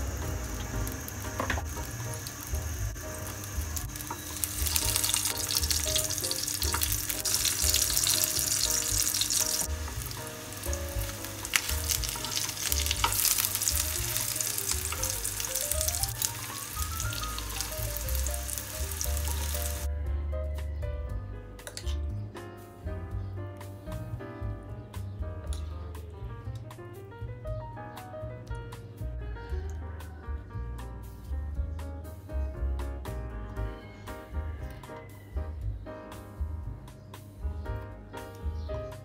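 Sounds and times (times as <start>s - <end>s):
food sizzling in hot oil: 0.0s - 19.9s
quiet background music: 0.0s - 39.0s.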